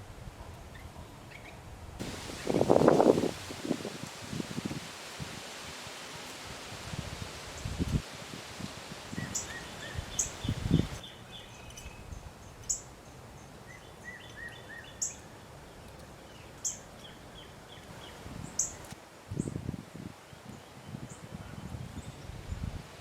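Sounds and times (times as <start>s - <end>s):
wind buffeting microphone: 2.0s - 11.0s, 19.3s - 23.0s
birds calling with sharp chips: 9.2s - 15.2s.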